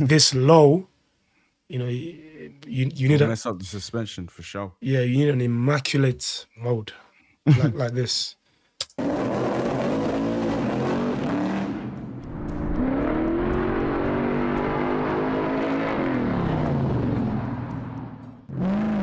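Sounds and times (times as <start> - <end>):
car engine revving: 9.0 - 19.0.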